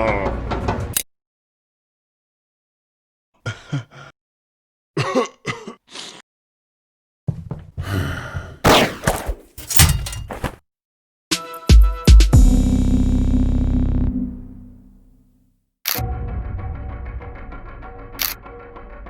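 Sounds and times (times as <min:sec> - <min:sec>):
voice gasps and groans: 0:03.4 - 0:04.2, 0:05.7 - 0:06.2, 0:07.8 - 0:08.6.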